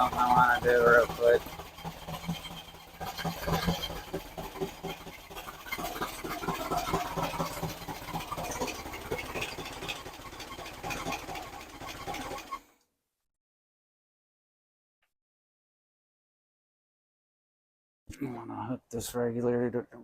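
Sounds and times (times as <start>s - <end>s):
engine clicks and knocks: 0.0s - 12.6s
engine running: 0.0s - 12.8s.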